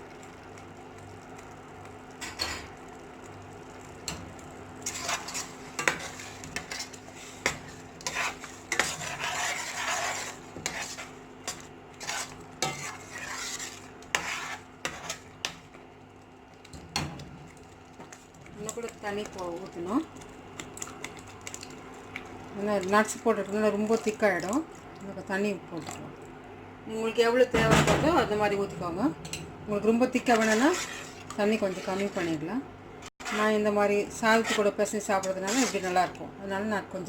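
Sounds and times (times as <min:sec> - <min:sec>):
spoon clinking and scraping pan: 0:04.8 - 0:15.6
spoon stirring in a metal pot: 0:04.8 - 0:15.9, 0:29.2 - 0:32.5, 0:33.2 - 0:36.2.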